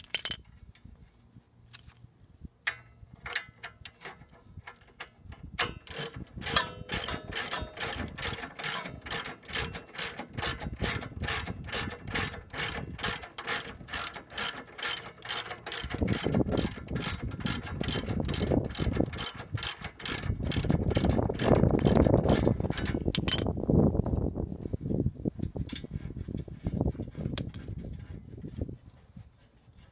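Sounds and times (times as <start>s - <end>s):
ratchet clicking: 5.6s - 23.5s.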